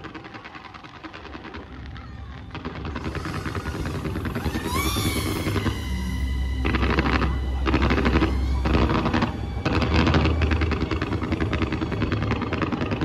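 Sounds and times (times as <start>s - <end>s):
fireworks crackling and popping: 0.0s - 13.0s
show music: 2.8s - 12.4s.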